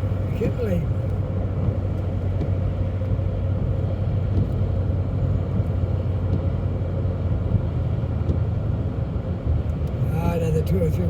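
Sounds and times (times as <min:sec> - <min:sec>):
engine and tyre rumble: 0:00.0 - 0:11.0
light ticks: 0:01.0 - 0:03.2, 0:05.5 - 0:06.6, 0:07.5 - 0:08.5, 0:09.6 - 0:10.0.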